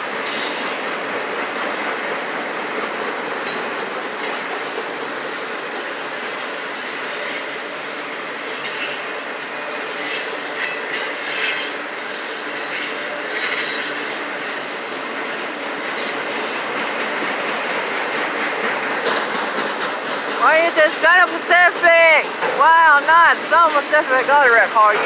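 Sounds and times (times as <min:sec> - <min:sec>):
freight train wheels rumbling on rail: 0:00.0 - 0:25.0
high-pitched wheel squeals: 0:05.9 - 0:16.8.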